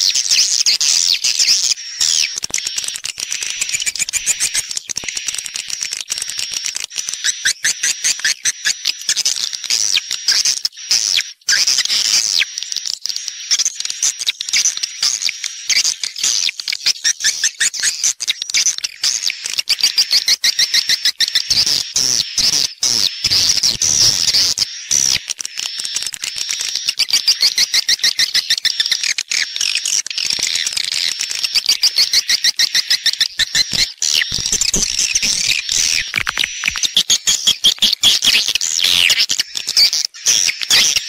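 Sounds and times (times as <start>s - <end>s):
swiftlets twittering: 23.3s - 41.0s.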